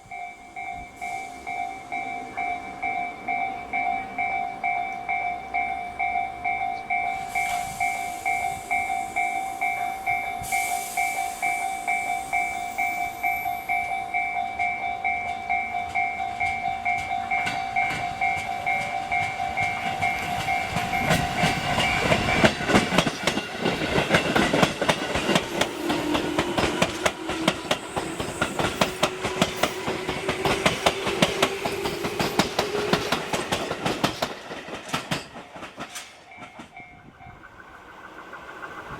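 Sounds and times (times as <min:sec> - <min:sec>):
level crossing warning bell: 0:00.0 - 0:37.9
train wheels clattering: 0:06.8 - 0:38.9
train motor whine: 0:15.5 - 0:35.3.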